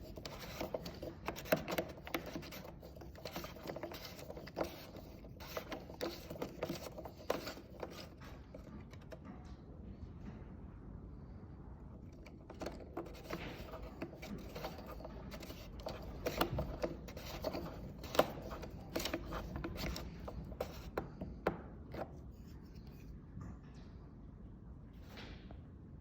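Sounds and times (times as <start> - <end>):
metallic clicks and scraping: 0.0 - 9.2, 12.0 - 23.0.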